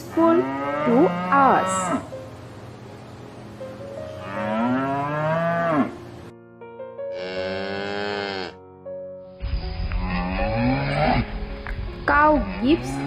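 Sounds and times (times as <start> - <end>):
cows mooing: 0.1 - 2.1, 4.2 - 6.0, 7.1 - 8.6, 9.8 - 11.3, 12.4 - 13.0.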